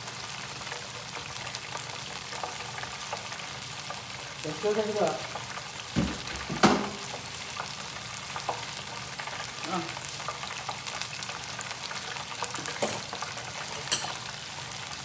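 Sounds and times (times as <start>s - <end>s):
seafood deep-frying in oil: 0.0s - 15.0s.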